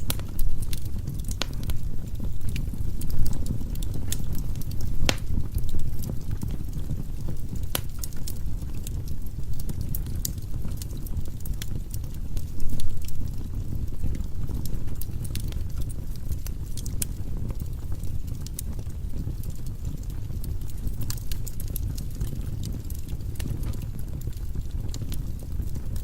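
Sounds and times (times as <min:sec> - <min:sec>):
burning logs crackling and popping: 0:00.0 - 0:26.0
flames low rumble: 0:00.0 - 0:26.0.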